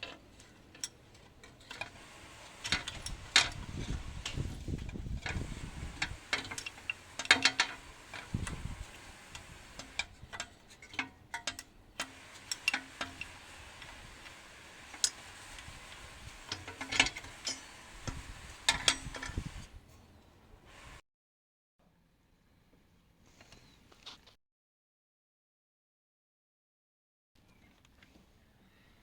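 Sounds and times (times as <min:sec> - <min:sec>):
metallic clicks of hand tools: 0:09.3 - 0:15.7, 0:16.5 - 0:19.4.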